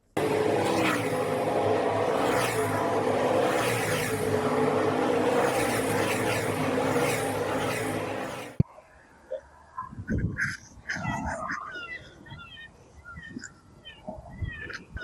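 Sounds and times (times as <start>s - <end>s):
road noise: 0.0s - 8.6s
truck engine running: 0.1s - 8.6s.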